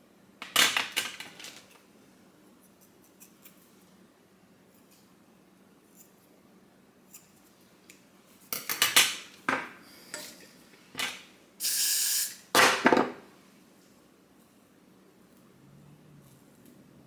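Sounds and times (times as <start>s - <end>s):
short steady hiss: 11.6s - 12.5s.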